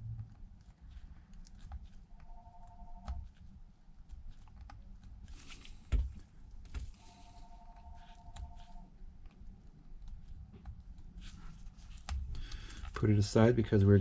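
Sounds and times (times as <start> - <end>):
plastic film peeling: 0.4 - 13.0.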